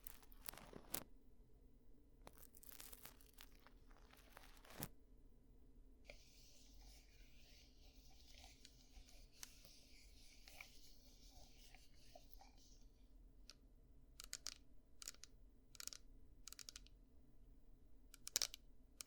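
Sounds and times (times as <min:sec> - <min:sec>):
faint scratching clicks: 0:00.0 - 0:01.0, 0:02.2 - 0:04.9, 0:14.2 - 0:16.9, 0:18.2 - 0:18.6
soft rustling scrape: 0:00.0 - 0:01.0, 0:02.3 - 0:04.9, 0:06.1 - 0:13.0.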